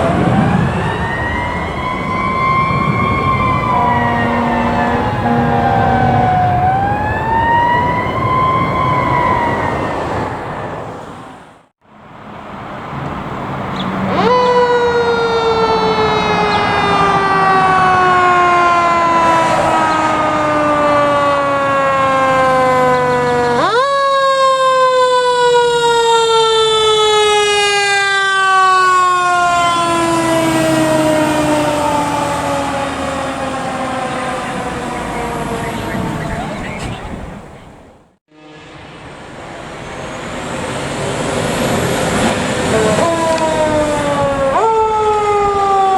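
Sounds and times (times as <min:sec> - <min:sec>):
low vehicle rumble: 0:00.0 - 0:10.9
fire truck sirens wailing: 0:00.0 - 0:45.9.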